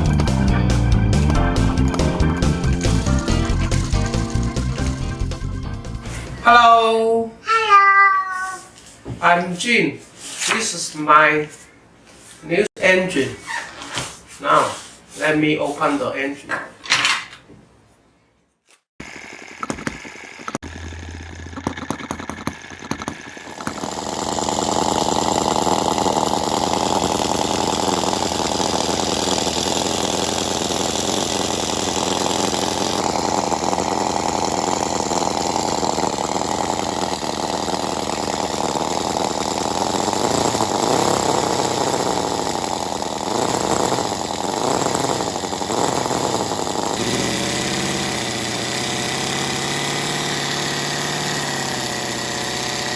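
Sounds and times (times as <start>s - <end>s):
small model engine running: 0.0s - 6.2s, 19.0s - 52.9s
starter clicking and humming: 0.0s - 6.4s, 19.0s - 52.9s.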